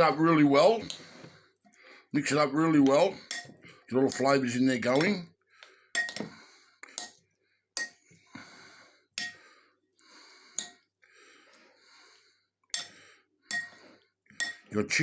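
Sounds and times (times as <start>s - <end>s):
spoon clinking against bowl: 2.8s - 4.3s, 6.0s - 6.3s, 7.8s - 8.0s, 9.2s - 9.4s, 10.6s - 10.8s, 12.8s - 13.8s, 14.4s - 14.7s.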